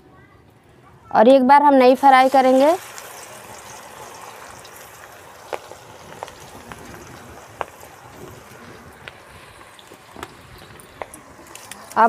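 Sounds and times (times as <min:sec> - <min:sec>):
okra sizzling in hot oil: 0:01.6 - 0:12.0.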